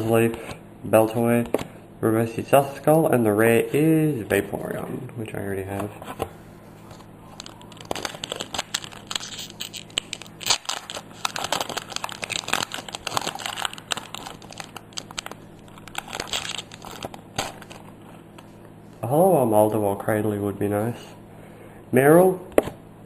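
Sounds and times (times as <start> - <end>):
low steady hum: 0.0 - 23.0
foil wrapper crinkling and tearing: 6.9 - 18.5.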